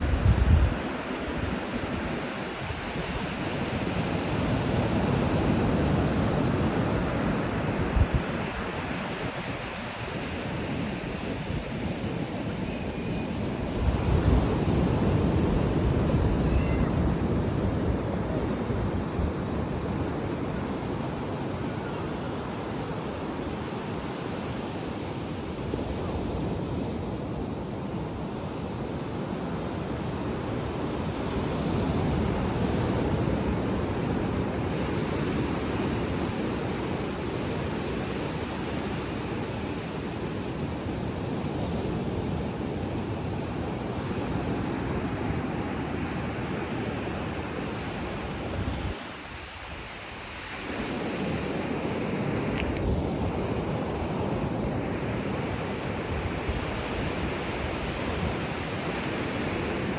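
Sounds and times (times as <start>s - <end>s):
surf washing onto beach: 29.8s - 59.9s.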